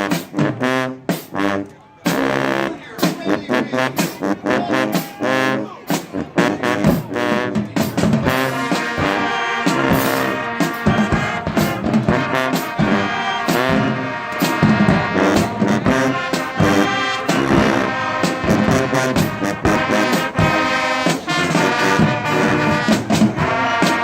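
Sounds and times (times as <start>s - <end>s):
brass band playing: 0.0s - 24.0s
drum hits: 5.9s - 24.0s.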